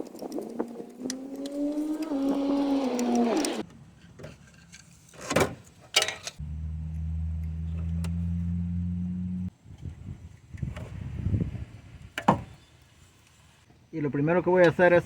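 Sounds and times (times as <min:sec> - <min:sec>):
small electric motor humming: 0:01.0 - 0:03.6.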